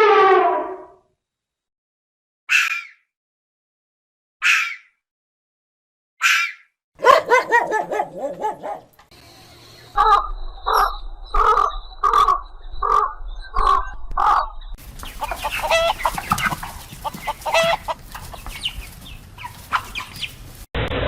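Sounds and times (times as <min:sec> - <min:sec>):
chickens clucking: 0:07.0 - 0:08.9, 0:09.8 - 0:20.7
hen calls: 0:09.9 - 0:20.7.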